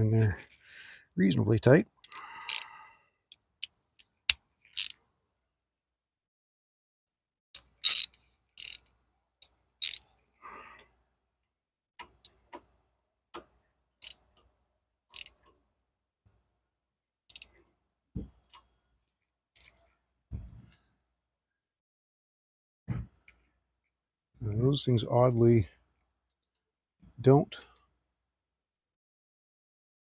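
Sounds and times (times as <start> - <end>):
metallic clicks of hand tools: 2.0 - 2.7, 3.6 - 5.0, 7.6 - 8.8, 13.4 - 14.2, 15.1 - 15.5, 17.3 - 17.5.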